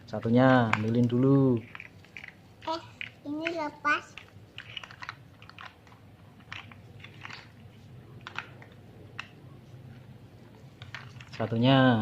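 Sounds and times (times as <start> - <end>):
plastic building bricks clicking: 0.5 - 7.6, 8.2 - 9.4, 10.8 - 11.6.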